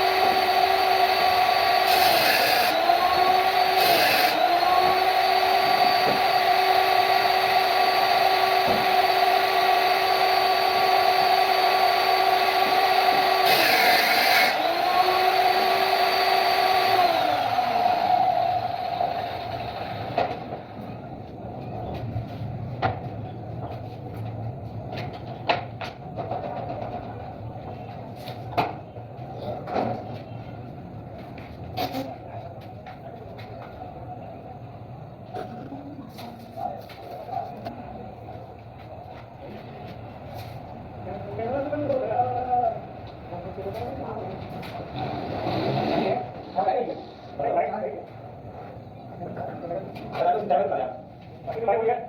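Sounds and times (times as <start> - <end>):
rasping wood cutting: 0.0 - 6.8, 12.1 - 19.4
power tool motor whining: 0.0 - 20.4.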